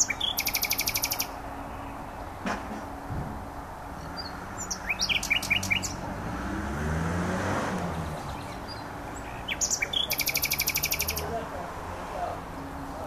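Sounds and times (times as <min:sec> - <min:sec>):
nightingale singing: 0:00.0 - 0:02.2, 0:04.0 - 0:06.1, 0:07.9 - 0:11.4.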